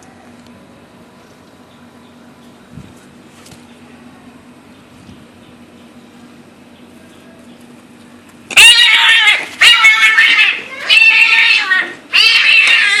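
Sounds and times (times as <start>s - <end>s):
cat meowing loudly: 8.5s - 13.0s.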